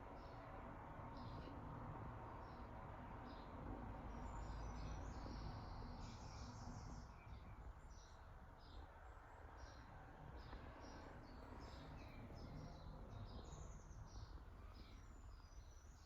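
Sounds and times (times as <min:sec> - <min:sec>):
small birds chirping: 0:04.1 - 0:16.0.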